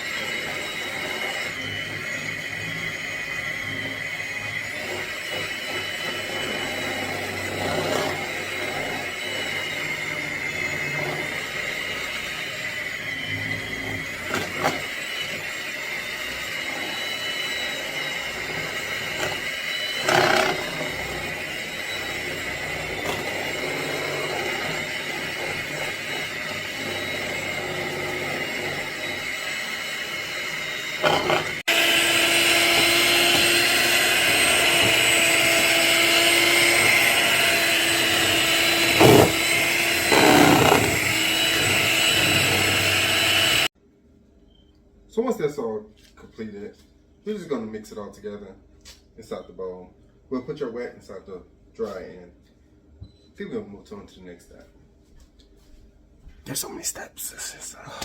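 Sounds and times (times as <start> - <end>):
electric mixer motor running: 0.0 - 43.7.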